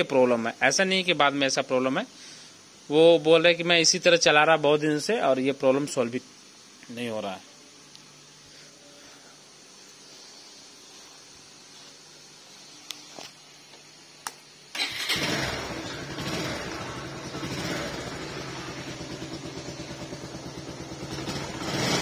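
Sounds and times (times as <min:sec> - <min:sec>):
motorcycle engine starting and idling: 0:14.7 - 0:22.0.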